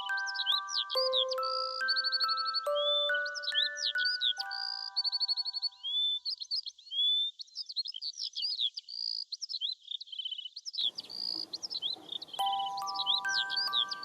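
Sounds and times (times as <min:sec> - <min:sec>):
chime-like music tones: 0:00.0 - 0:05.8, 0:12.4 - 0:14.0
songbird chirping and trilling: 0:00.0 - 0:14.0.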